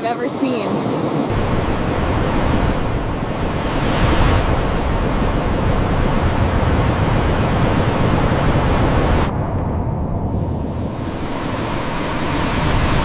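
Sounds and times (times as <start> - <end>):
rushing water: 1.3 - 9.3, 10.8 - 13.0.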